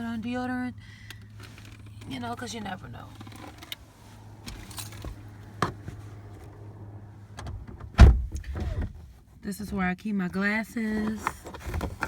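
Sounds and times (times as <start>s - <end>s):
loud thump: 8.0s - 8.8s.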